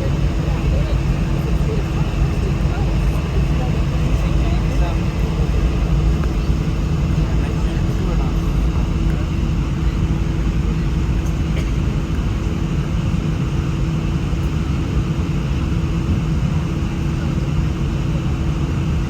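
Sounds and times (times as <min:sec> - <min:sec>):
jet engines rumbling in cabin: 0:00.0 - 0:19.0.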